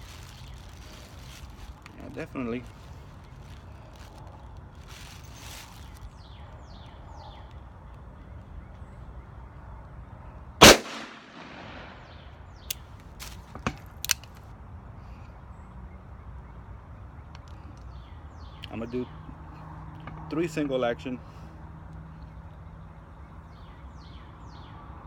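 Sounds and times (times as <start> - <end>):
revolver gunshot with echo: 10.6 - 12.2.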